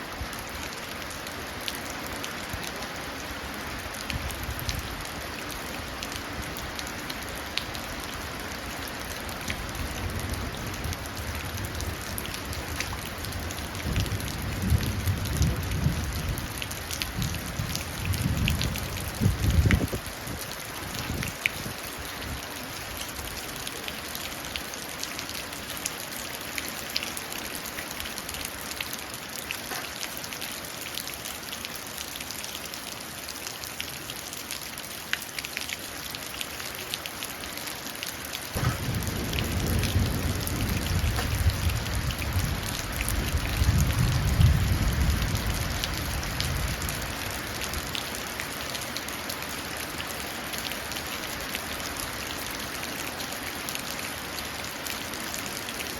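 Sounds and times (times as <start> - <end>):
rain falling into puddles: 0.0 - 55.9
thunder rumble: 38.6 - 46.8.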